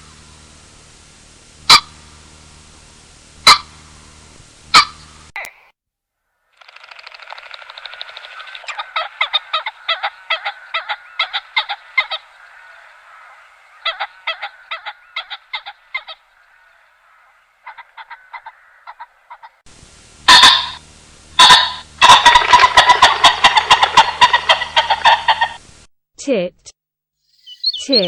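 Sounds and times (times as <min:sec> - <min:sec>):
bird calling with harsh notes: 0:04.7 - 0:05.3, 0:06.6 - 0:19.6, 0:27.3 - 0:28.0
animal calls: 0:06.6 - 0:19.6, 0:21.4 - 0:25.6, 0:27.5 - 0:28.0.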